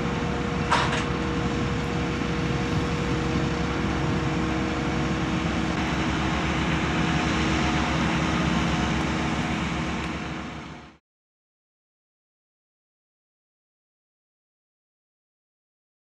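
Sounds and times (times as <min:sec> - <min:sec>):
jet engines running at low power: 0:00.0 - 0:11.0.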